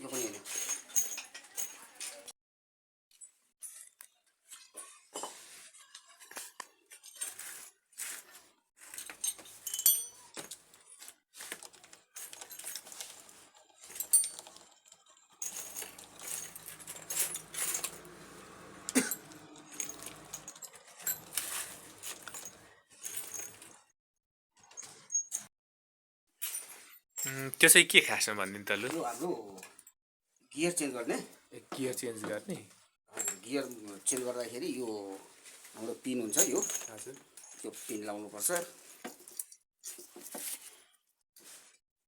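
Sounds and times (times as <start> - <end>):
metal tools clinking and clattering: 0.0 - 2.3, 3.6 - 23.8, 33.2 - 40.8.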